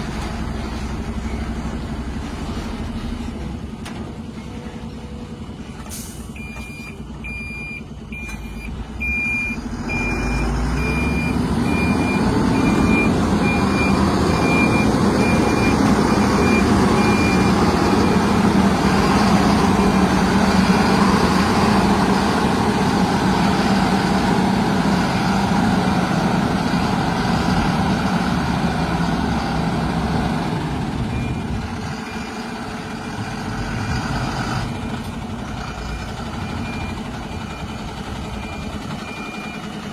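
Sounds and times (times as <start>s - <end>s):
diesel engine running under load: 0.0s - 39.9s
reversing alarm beeping: 6.1s - 21.4s, 35.8s - 39.7s.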